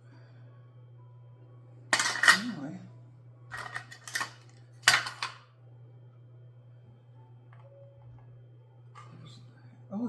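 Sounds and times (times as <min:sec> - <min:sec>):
kitchen utensils clattering: 0:02.0 - 0:02.6, 0:03.5 - 0:05.4.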